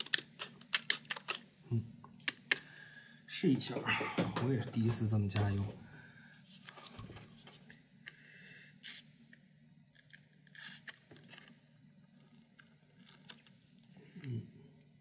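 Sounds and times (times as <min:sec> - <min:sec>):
plastic clicks and scrapes: 0:00.0 - 0:01.4, 0:10.0 - 0:13.9.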